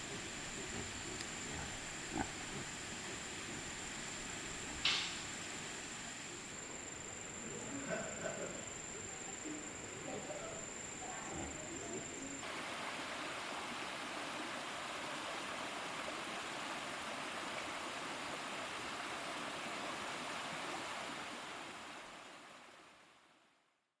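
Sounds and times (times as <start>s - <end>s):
running water: 0.0s - 23.2s.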